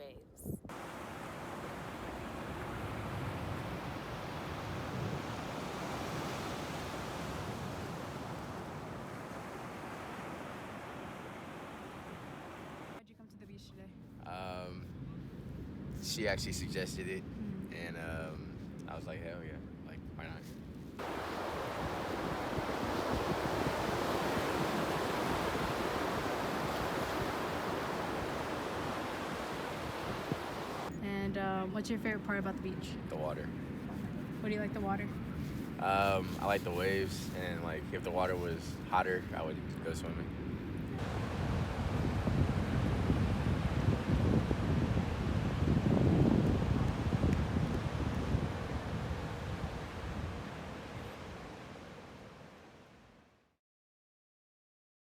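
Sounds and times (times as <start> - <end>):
wind on microphone: 0.2 - 13.0, 21.0 - 31.5, 40.4 - 52.0
ocean surf washing on beach: 0.7 - 13.0, 21.0 - 30.9, 34.0 - 40.2, 40.9 - 53.1.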